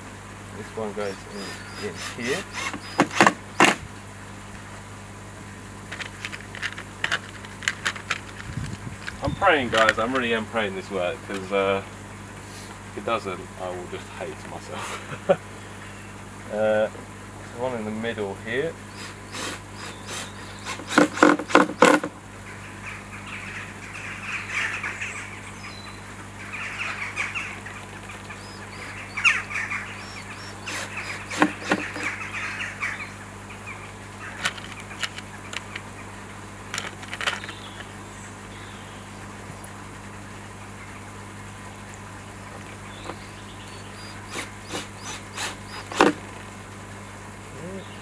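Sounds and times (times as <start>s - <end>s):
screwdriver turning screws: 1.4s - 3.8s, 19.0s - 22.1s, 30.6s - 32.1s, 44.3s - 46.2s.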